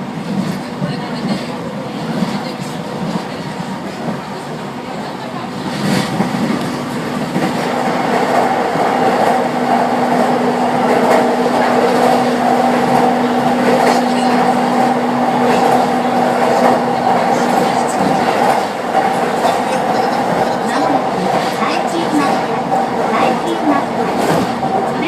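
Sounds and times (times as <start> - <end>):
train wheels rumbling: 0.0 - 25.0
rail-joint clacks: 5.5 - 25.0.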